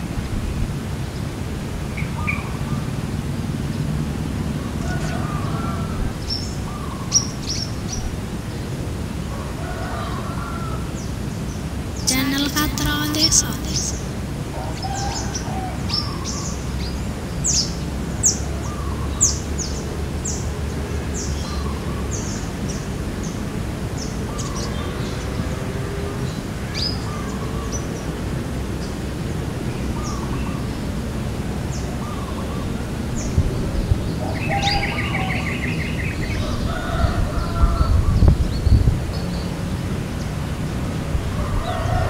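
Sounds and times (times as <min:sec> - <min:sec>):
low background noise: 0:00.0 - 0:42.0.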